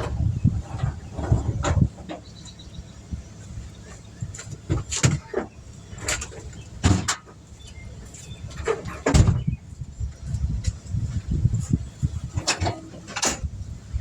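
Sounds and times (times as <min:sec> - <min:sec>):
equipment clunks and knocks: 0:04.4 - 0:07.4, 0:08.6 - 0:09.6.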